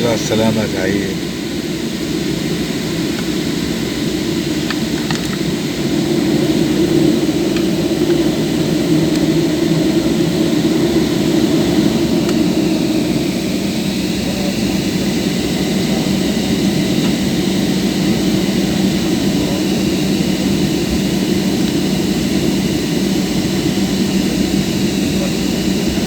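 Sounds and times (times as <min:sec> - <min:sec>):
faint steady tones: 0:00.0 - 0:26.0
jet cabin engine hum: 0:00.0 - 0:26.0.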